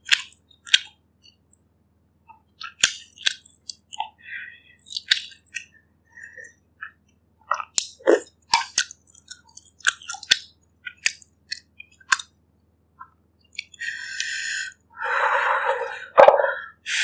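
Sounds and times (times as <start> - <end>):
wet chewing: 2.6 - 4.2, 4.8 - 5.7, 7.5 - 12.4.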